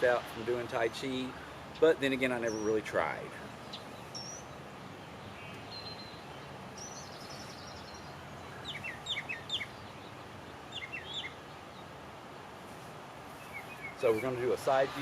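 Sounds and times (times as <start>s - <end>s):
outdoor background hiss: 0.0s - 15.0s
small birds chirping: 0.0s - 15.0s.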